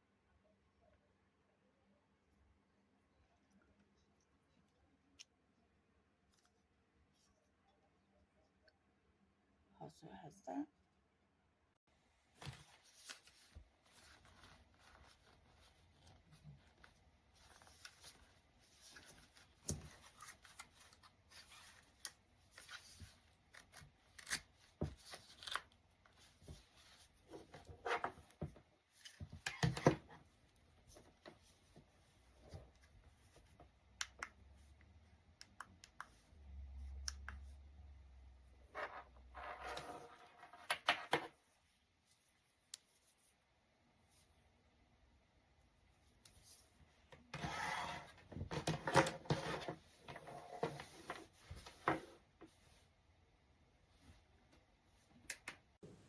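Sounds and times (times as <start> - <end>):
rustling and scraping: 46.3 - 52.9.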